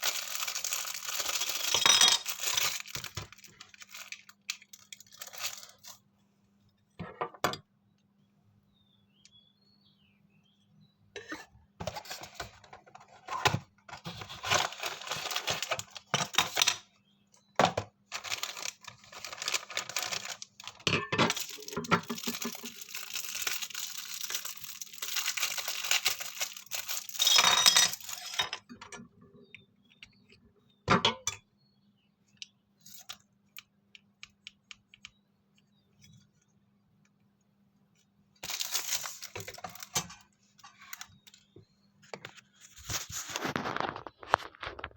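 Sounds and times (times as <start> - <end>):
wrapping rustling and tearing: 0.0 - 6.0, 13.9 - 16.6, 18.1 - 28.4, 38.4 - 39.9.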